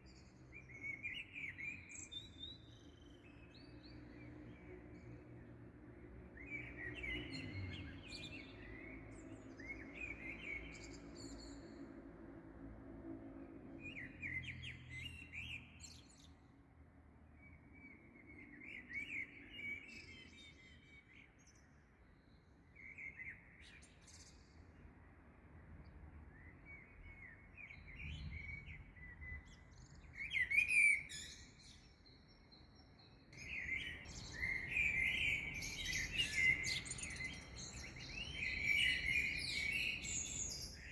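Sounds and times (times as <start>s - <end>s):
small songbirds chirping: 26.3s - 40.9s.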